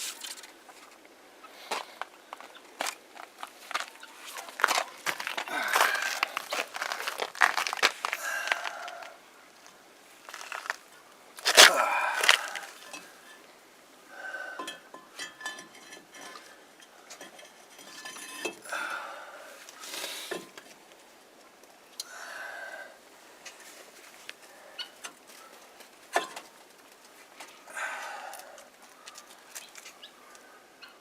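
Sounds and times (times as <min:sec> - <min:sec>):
metal tools clinking on parts: 0:14.6 - 0:18.6
poultry bird calls: 0:28.8 - 0:31.0.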